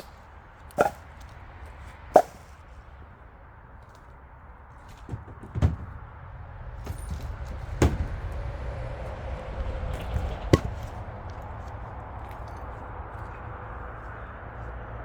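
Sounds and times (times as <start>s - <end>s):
axe splitting firewood: 0.0s - 1.4s, 2.0s - 2.6s, 6.8s - 8.5s, 9.9s - 12.8s.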